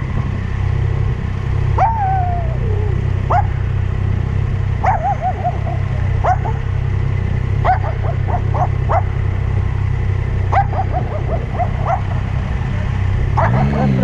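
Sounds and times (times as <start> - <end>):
motorbike running: 0.0 - 14.0
dog barking: 1.8 - 2.2, 3.3 - 3.6, 4.8 - 6.7, 7.6 - 9.2, 10.5 - 12.3, 13.3 - 14.0.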